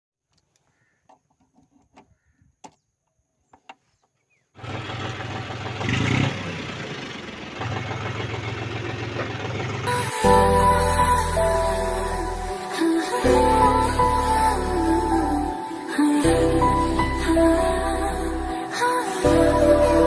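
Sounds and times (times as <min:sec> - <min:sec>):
tractor engine running: 0:04.6 - 0:10.3
music: 0:09.9 - 0:20.0.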